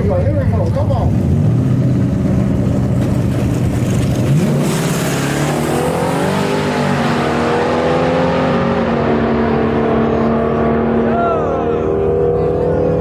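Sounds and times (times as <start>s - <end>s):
truck engine revving and accelerating: 1.0s - 13.0s.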